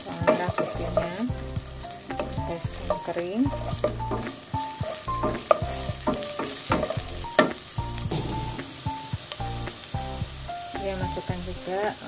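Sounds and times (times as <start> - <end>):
shallots sizzling in hot oil: 0.0 - 12.0
wooden spatula scraping pan: 2.2 - 7.1.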